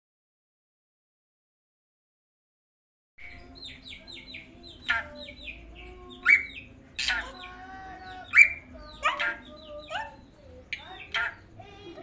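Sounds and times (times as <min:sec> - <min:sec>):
bird chirping: 0:03.2 - 0:12.0.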